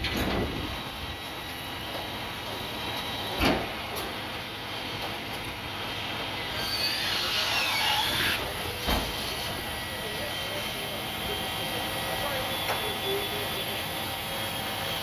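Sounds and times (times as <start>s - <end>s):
machinery rumble: 0.0s - 15.0s
metal on metal squeal: 6.5s - 8.4s.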